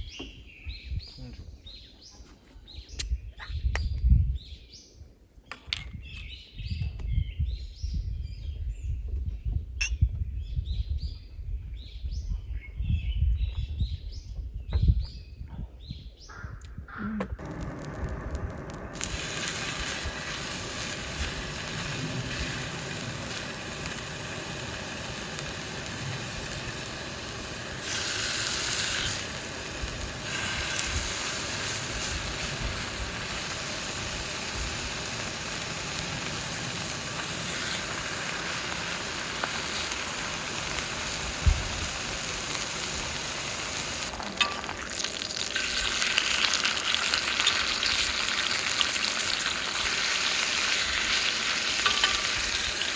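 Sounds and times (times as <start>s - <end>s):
food sizzling in a pan: 17.4s - 52.9s.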